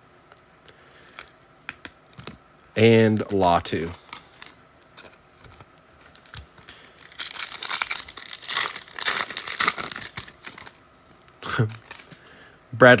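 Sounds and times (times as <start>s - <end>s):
foil wrapper tearing and crinkling: 6.1s - 10.8s, 11.5s - 12.2s.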